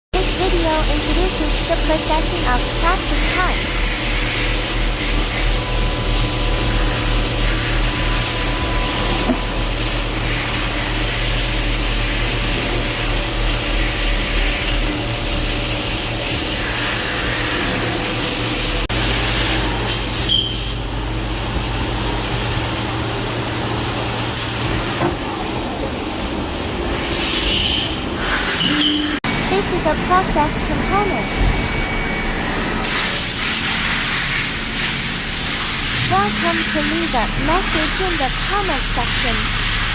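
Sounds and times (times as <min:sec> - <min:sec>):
low machine hum: 0:00.2 - 0:28.2, 0:35.8 - 0:39.9
machine hiss: 0:00.2 - 0:29.2.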